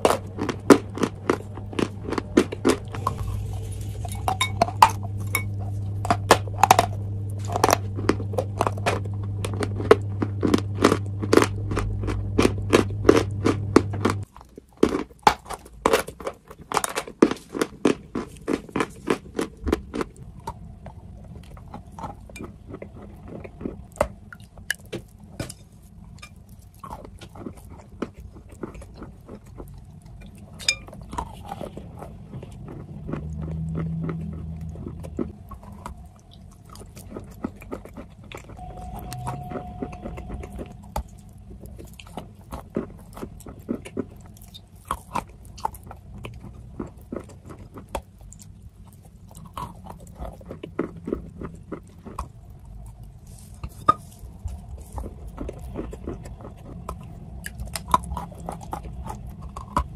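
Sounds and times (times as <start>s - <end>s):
low steady hum: 0.0s - 59.9s
person crunching chalk: 31.3s - 59.9s.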